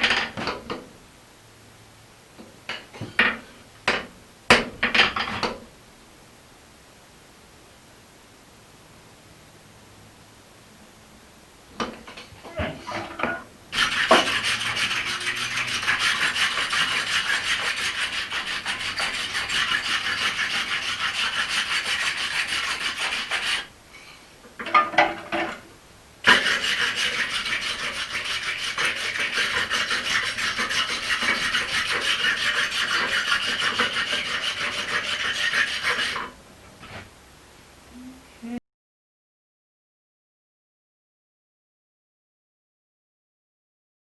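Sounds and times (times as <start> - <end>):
tool scraping steel: 12.1 - 23.7, 26.2 - 36.4.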